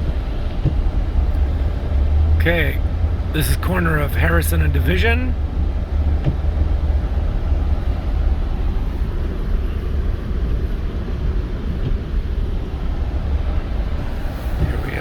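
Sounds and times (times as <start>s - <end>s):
pickup truck engine and road noise: 0.0s - 15.0s.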